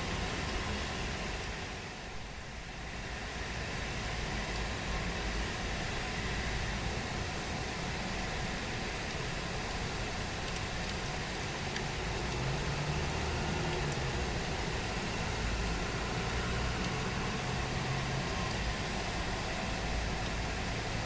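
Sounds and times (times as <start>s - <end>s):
steady rain falling: 0.0s - 21.0s
vehicle engine humming: 8.7s - 21.0s.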